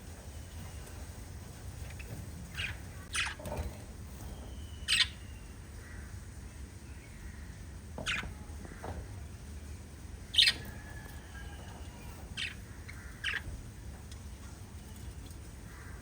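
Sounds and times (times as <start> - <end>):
low steady background hum: 0.0 - 16.0
budgerigars chirping and squawking: 1.8 - 6.2, 7.1 - 9.1, 10.2 - 14.2.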